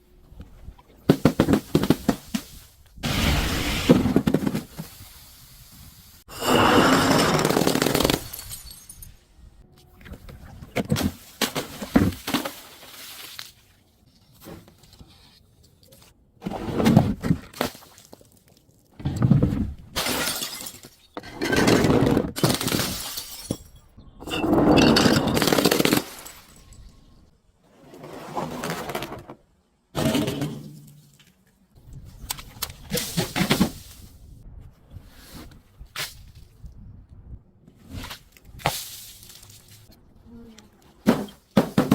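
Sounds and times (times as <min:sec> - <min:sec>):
glass crunching and shattering: 0:06.8 - 0:09.2, 0:20.0 - 0:21.5, 0:22.4 - 0:27.1.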